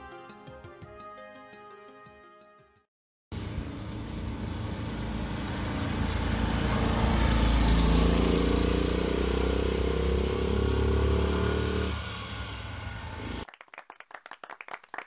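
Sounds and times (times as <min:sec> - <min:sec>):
small car engine running: 0:03.4 - 0:13.4.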